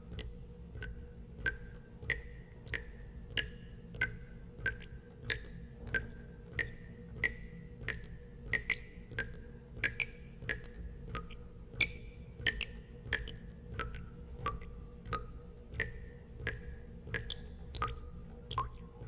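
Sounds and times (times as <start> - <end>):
water drops plinking into water: 0.1 - 19.0.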